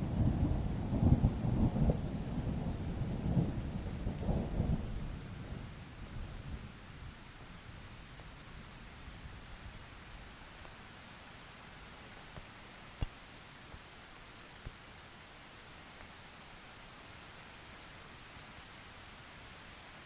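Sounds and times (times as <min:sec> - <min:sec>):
rolling thunder rumble: 0:00.0 - 0:05.8
faint steady hiss: 0:00.0 - 0:20.0
rain: 0:00.0 - 0:20.0.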